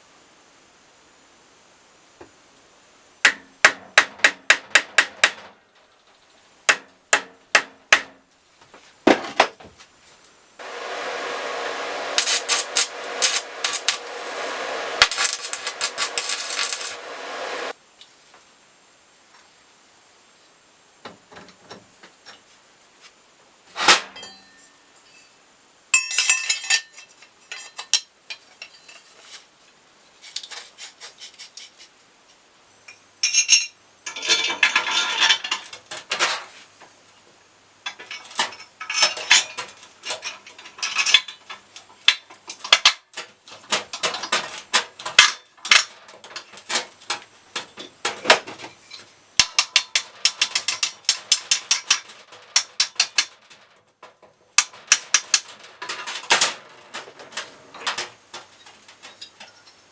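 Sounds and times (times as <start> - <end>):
metal parts and tools clinking: 12.2 - 14.0, 15.0 - 17.0, 26.0 - 29.2, 33.2 - 35.8, 37.9 - 41.6.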